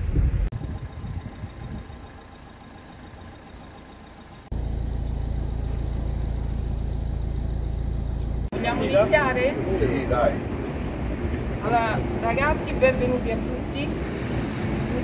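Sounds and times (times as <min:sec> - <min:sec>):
engine idling drone: 0:00.0 - 0:09.0
car engine rumble: 0:00.0 - 0:15.0.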